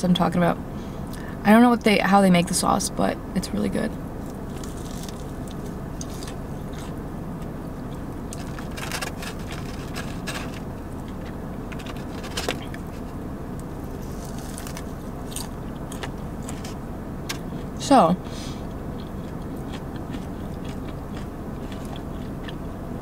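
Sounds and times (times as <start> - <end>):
low hum: 0.0 - 23.0
chewing crunchy fried food: 4.2 - 17.8, 18.6 - 23.0.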